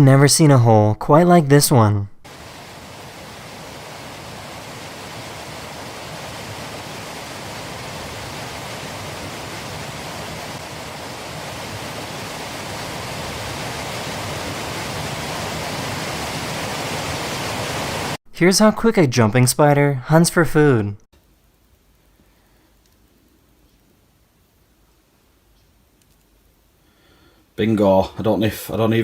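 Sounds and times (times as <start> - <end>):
water rushing into a hole: 2.3 - 18.2.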